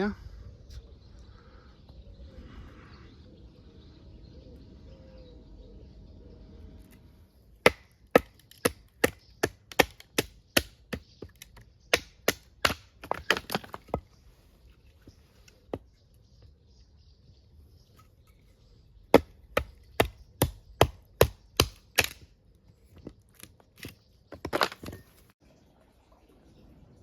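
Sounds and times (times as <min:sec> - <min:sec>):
axe chopping wood: 0:07.6 - 0:14.1, 0:19.1 - 0:22.3.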